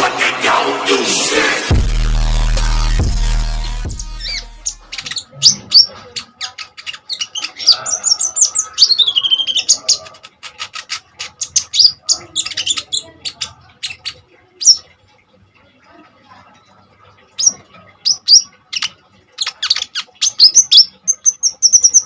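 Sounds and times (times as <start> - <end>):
sunbird chirping and trilling: 3.9 - 14.9, 17.4 - 22.0.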